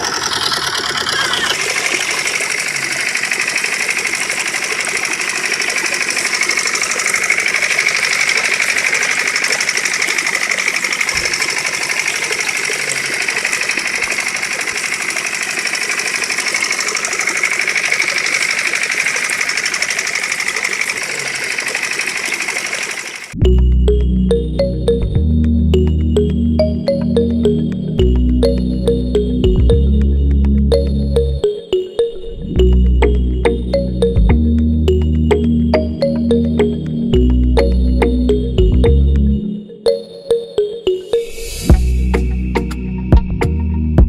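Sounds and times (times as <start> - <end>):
small electric motor buzzing: 0.0 - 23.4.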